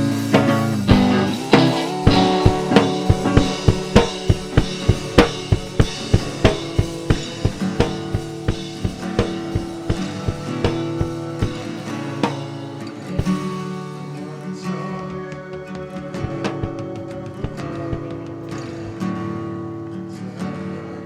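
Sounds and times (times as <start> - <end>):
drum kit steady beat: 0.0 - 14.2, 14.8 - 18.5
sustained guitar and bass: 0.0 - 14.2.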